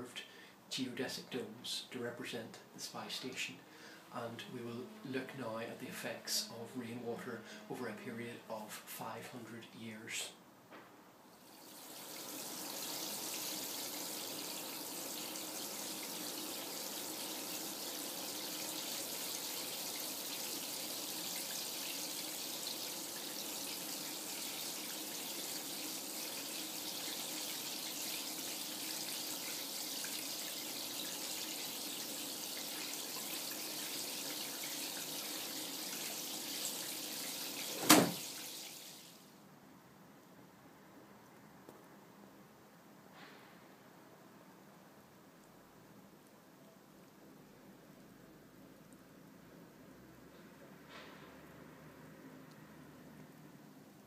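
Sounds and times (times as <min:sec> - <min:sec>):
water running: 0:11.4 - 0:39.4.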